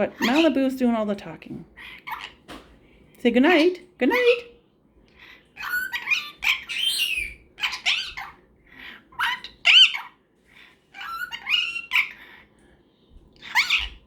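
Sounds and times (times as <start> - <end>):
parrot squawky chattering: 0.1 - 0.6, 1.8 - 2.4, 5.6 - 10.2, 11.0 - 12.4, 13.4 - 14.0.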